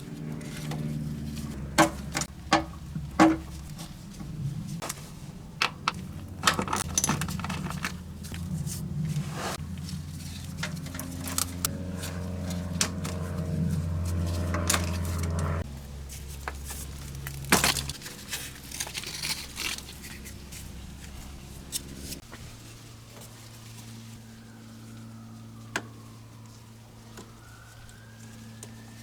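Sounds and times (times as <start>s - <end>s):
steady low hum: 0.0s - 17.9s
metal parts clicking and clinking: 5.6s - 8.4s.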